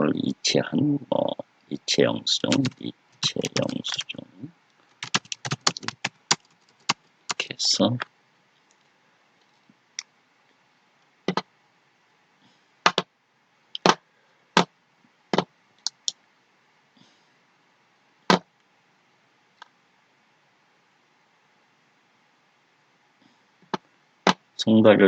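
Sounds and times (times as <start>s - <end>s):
keyboard and mouse clicks: 2.4s - 4.2s, 4.9s - 7.4s, 15.8s - 16.1s.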